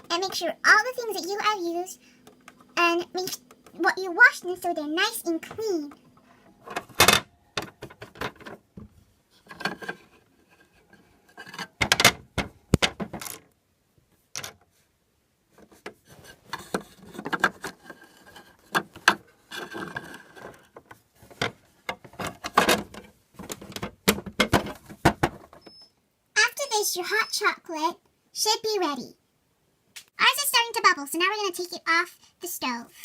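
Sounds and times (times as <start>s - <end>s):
toy kitchen items clicking and clattering: 2.8s - 5.9s, 9.4s - 12.2s.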